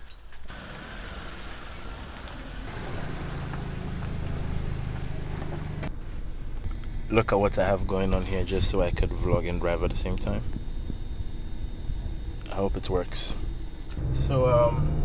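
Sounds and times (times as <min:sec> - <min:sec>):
car engine humming: 0:00.5 - 0:09.8.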